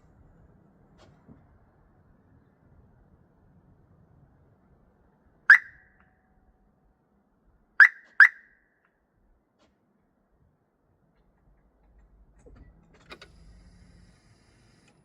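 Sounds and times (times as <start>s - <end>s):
car horn chirping: 5.5s - 6.0s, 7.8s - 8.6s.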